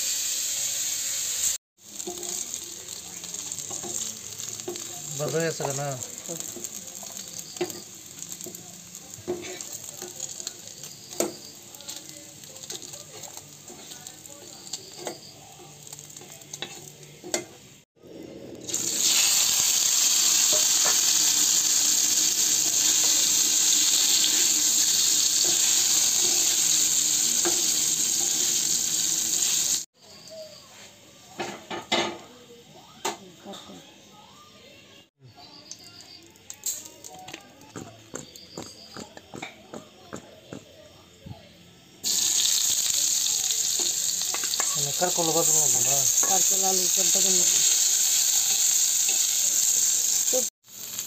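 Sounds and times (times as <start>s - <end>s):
food frying in a pan: 0.0s - 17.9s, 18.6s - 30.0s, 41.8s - 51.0s
spoon scraping a pan: 6.4s - 11.7s, 12.5s - 17.6s.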